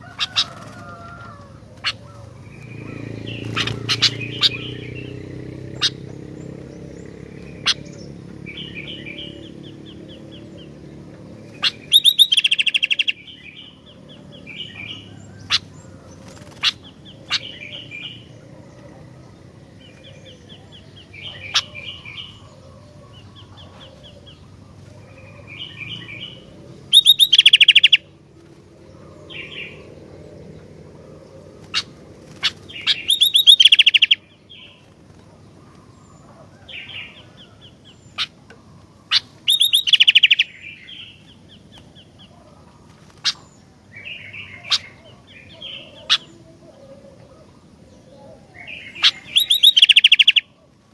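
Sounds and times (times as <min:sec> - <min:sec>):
bird rapid rattling: 0:00.0 - 0:13.1, 0:15.4 - 0:17.5, 0:31.5 - 0:34.1
bird singing and chirping: 0:00.0 - 0:50.9.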